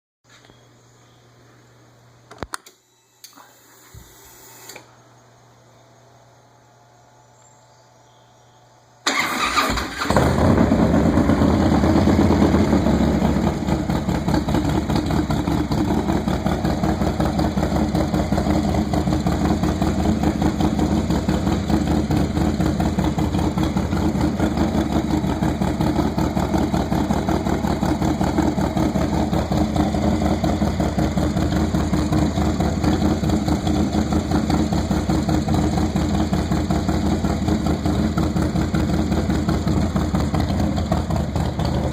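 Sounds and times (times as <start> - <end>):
engine starting and idling: 9.0 - 41.9.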